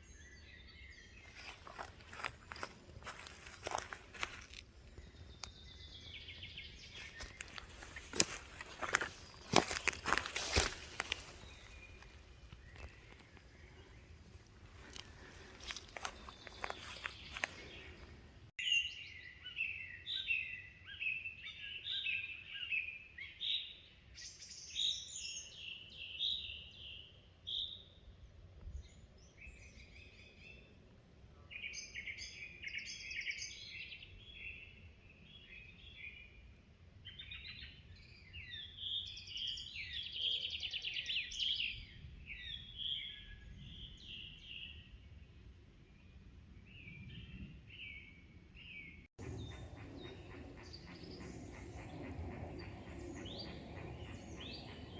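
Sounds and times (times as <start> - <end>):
songbirds twittering: 0.0 - 27.8, 46.0 - 54.9.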